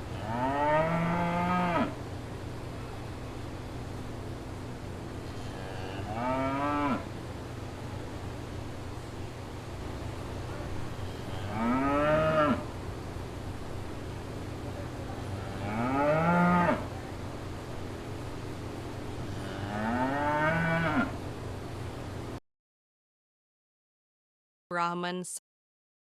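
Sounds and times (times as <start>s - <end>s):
steady low hum: 0.0s - 22.4s
cow mooing: 0.1s - 1.9s, 5.4s - 7.1s, 11.0s - 12.7s, 15.4s - 16.9s, 19.3s - 21.2s.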